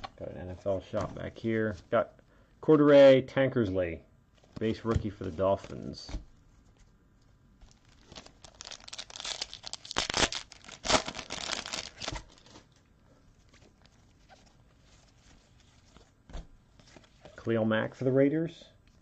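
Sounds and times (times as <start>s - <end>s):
wrapper tearing and crinkling: 7.6s - 12.8s.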